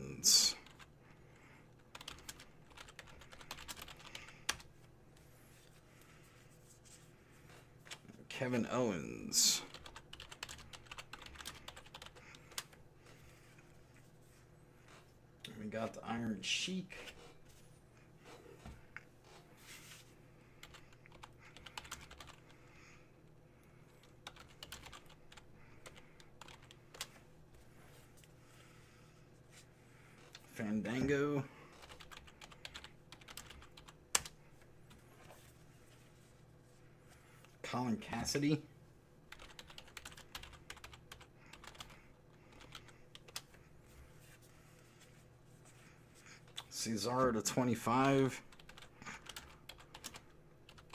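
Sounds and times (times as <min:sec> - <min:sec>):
computer keyboard typing: 0:00.5 - 0:00.9, 0:01.8 - 0:04.7, 0:09.6 - 0:12.8, 0:20.6 - 0:22.6, 0:24.0 - 0:27.1, 0:31.7 - 0:35.0, 0:39.3 - 0:43.6, 0:48.5 - 0:50.9.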